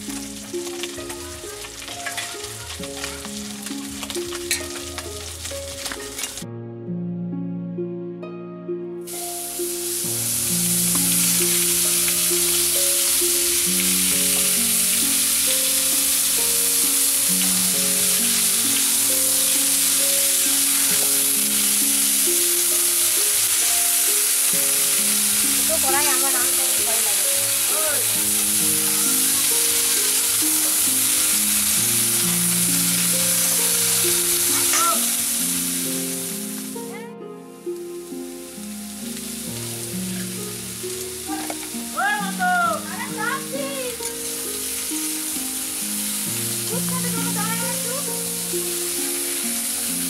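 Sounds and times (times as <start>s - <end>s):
vegetables sizzling in hot oil: 0.0s - 6.4s, 9.1s - 36.9s, 37.6s - 50.0s
soft background music: 0.0s - 50.0s
metal spatula stirring: 0.6s - 6.4s.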